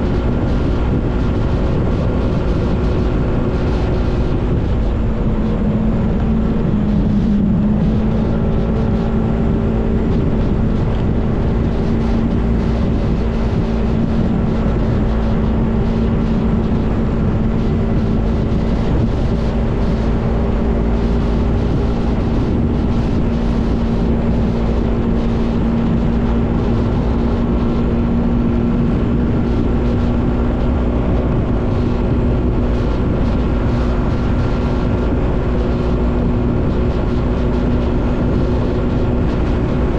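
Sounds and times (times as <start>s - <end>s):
motorcycle engine running: 0.0s - 39.9s
road rumble: 0.0s - 39.9s
wind on microphone: 0.0s - 39.9s.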